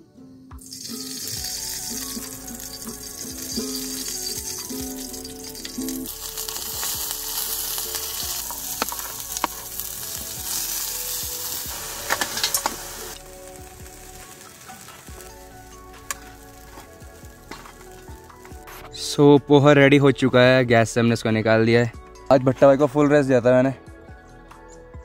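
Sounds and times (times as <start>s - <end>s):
food sizzling in a pan: 0.6s - 18.8s.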